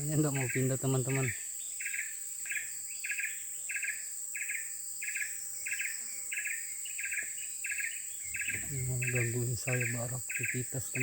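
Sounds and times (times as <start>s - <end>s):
insects chirping: 0.0s - 11.0s
high-pitched insect drone: 8.3s - 11.0s.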